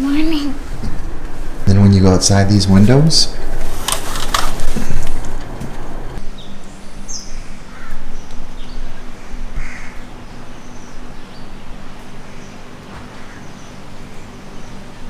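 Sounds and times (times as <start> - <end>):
steady low hum: 0.0 - 15.0
birds calling: 6.2 - 15.0.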